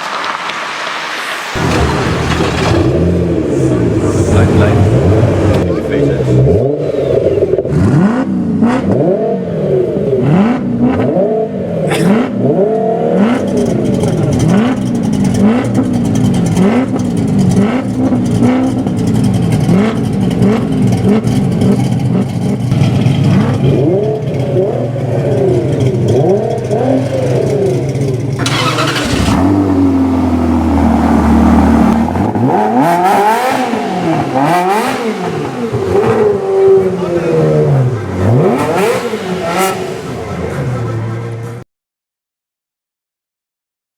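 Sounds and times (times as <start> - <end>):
sports car engines revving: 0.1 - 41.6
steady engine note: 13.2 - 41.6.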